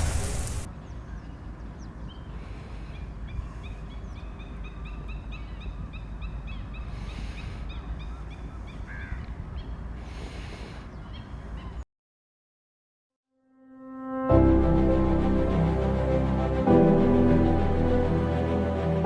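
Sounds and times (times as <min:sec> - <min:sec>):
bird chirping: 0:10.8 - 0:11.8.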